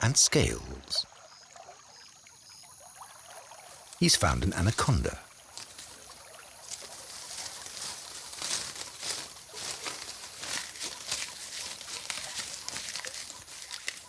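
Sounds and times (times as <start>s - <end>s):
rustling and crackling: 5.5s - 14.0s.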